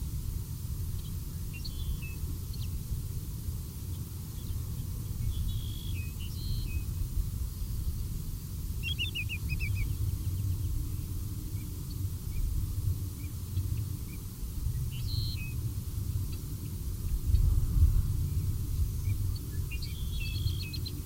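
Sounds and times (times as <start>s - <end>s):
steady low rumble: 9.4s - 21.0s.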